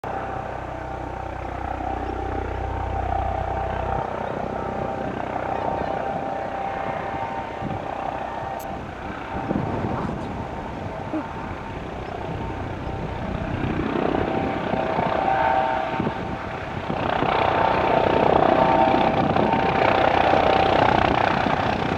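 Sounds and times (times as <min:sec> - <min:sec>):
deep low hum: 0:00.0 - 0:14.4
helicopter turbines whining: 0:00.0 - 0:21.9.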